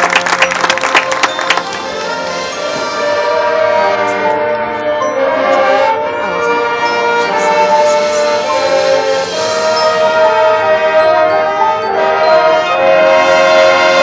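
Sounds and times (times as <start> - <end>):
brass band playing held chords: 0.0 - 14.0.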